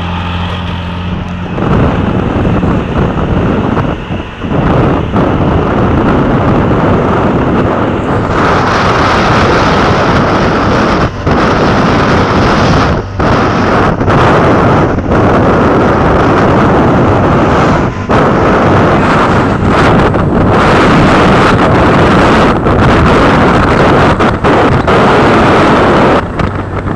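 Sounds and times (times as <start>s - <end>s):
wind blowing across microphone: 0.0s - 26.9s.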